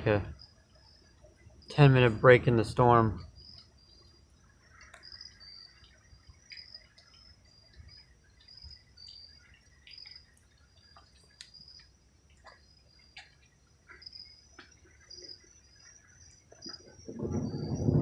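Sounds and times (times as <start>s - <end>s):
crickets chirping: 0.0s - 18.0s
high insect trill: 0.0s - 18.0s
faint clicks: 4.7s - 5.2s, 9.6s - 14.8s.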